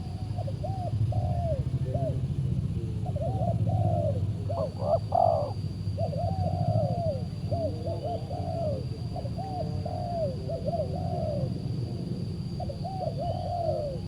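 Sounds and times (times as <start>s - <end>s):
doves cooing: 3.0s - 11.6s, 12.6s - 14.0s.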